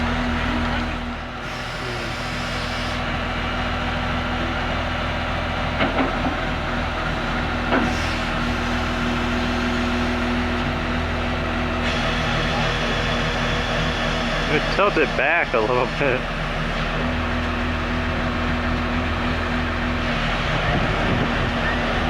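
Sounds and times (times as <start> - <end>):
heavy engine idling: 0.0 - 22.0.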